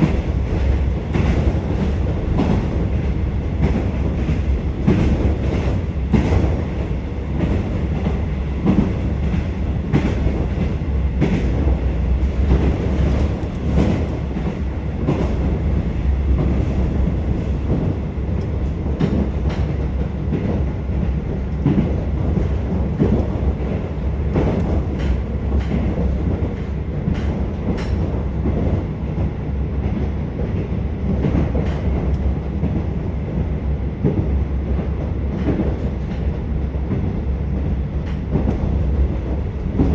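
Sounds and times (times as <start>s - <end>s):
railcar engine rumble: 0.0s - 39.9s.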